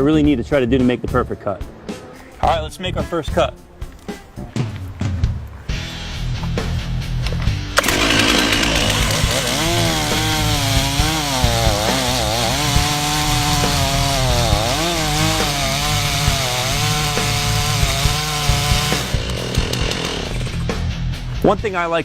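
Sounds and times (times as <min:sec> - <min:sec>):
chainsaw cutting tree trunk: 0:07.8 - 0:20.7.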